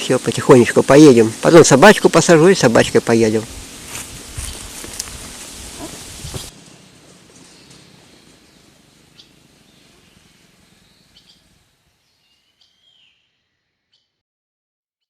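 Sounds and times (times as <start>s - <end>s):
short high bird chirps: 12.1s - 14.2s.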